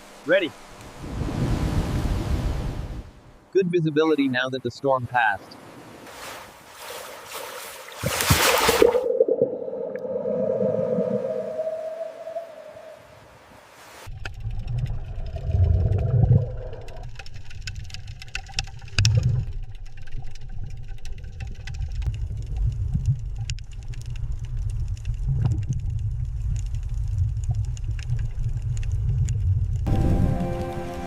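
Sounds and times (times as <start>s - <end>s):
crackling clicks: 14.1s - 29.9s.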